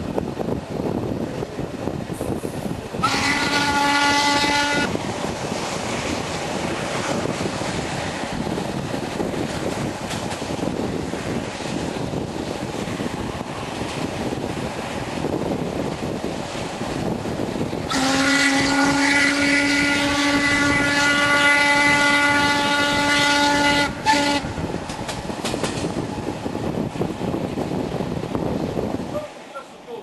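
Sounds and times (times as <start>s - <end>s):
train running noise: 0.0s - 30.0s
steam locomotive whistle: 3.0s - 4.9s, 17.9s - 24.6s.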